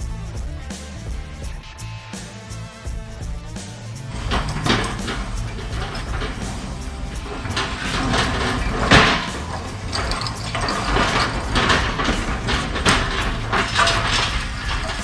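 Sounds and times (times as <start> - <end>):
metal tools clattering: 4.1 - 15.0.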